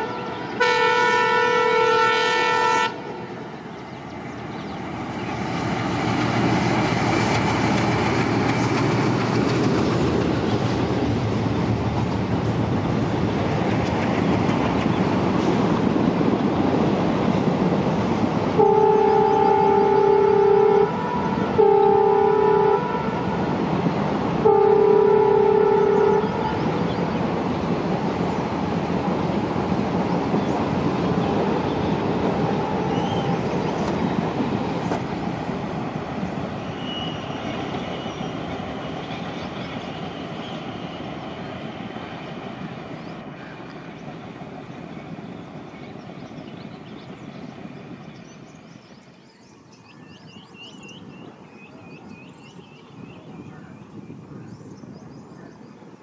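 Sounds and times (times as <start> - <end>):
locomotive horn blast: 0.0 - 3.2, 18.6 - 23.6, 24.4 - 26.9, 36.7 - 38.2
birds chirping: 0.0 - 11.9, 25.8 - 56.0
train rumbling on track: 0.0 - 56.0.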